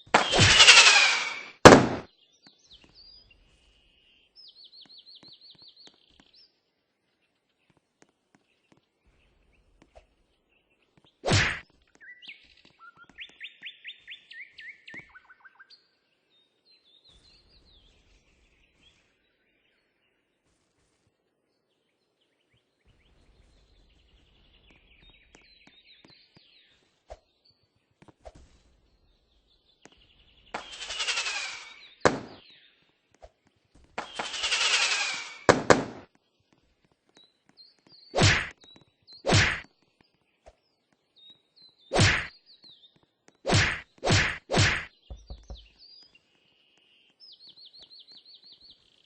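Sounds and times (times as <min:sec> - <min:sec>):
songbird trilling: 0:30.6 - 0:32.0.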